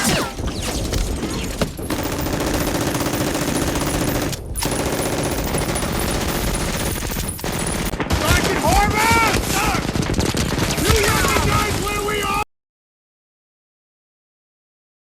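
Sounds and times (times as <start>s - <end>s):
automatic gunfire: 0.0s - 11.9s.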